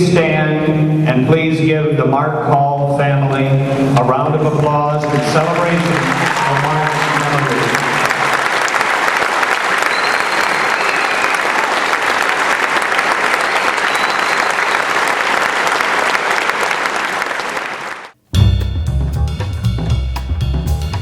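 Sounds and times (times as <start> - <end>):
crowd applauding: 5.0 - 18.2.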